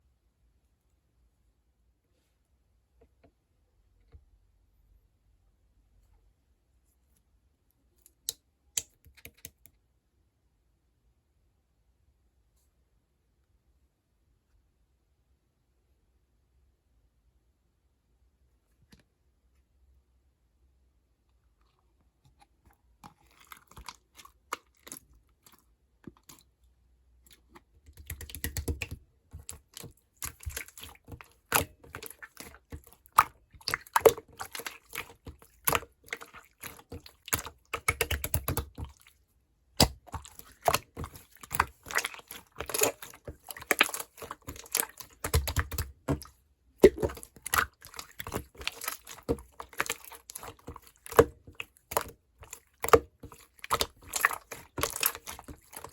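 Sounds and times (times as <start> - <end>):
slime squished by hand: 27.2 - 55.9.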